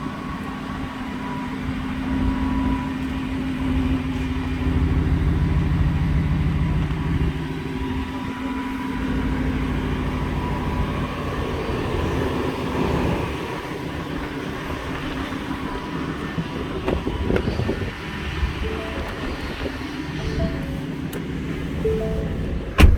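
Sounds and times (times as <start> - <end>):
pickup truck engine rumbling: 0.0 - 22.9.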